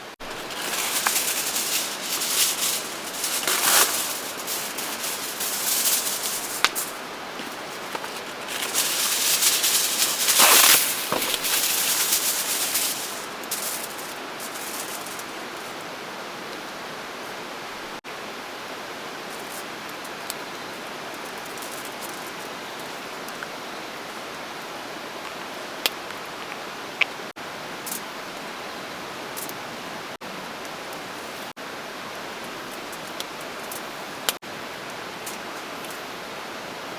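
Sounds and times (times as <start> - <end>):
rushing water hiss: 0.0 - 36.9
rustling and crinkling: 0.1 - 15.8, 21.1 - 23.4.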